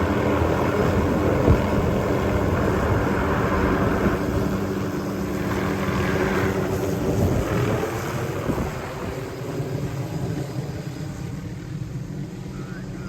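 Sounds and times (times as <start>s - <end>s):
helicopter engine and rotor: 0.0s - 13.0s.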